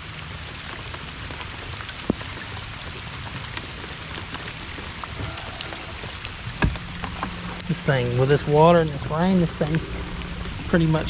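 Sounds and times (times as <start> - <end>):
rain falling on water: 0.0 - 11.0.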